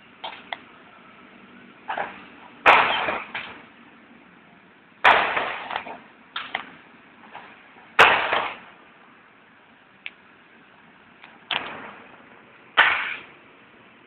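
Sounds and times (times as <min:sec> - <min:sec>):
fireworks bangs: 0:01.9 - 0:03.7, 0:05.0 - 0:06.6, 0:08.0 - 0:08.8, 0:11.5 - 0:13.4.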